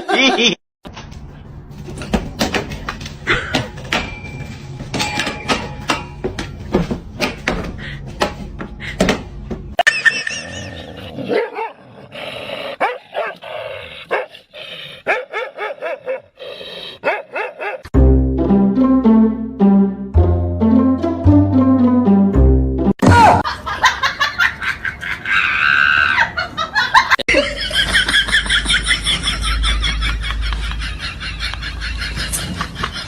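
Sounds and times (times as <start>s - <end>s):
music with low bowed strings: 18.0s - 22.9s.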